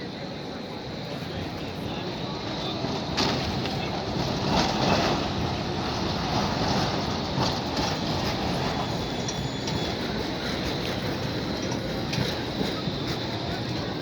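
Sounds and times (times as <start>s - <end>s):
tram rumbling on rails: 0.0s - 14.0s
high squeal tones: 7.8s - 13.5s.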